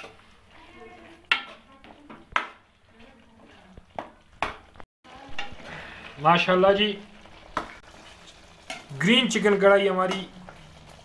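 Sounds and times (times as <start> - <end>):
metal spoon knocking on pan: 1.3 - 2.6.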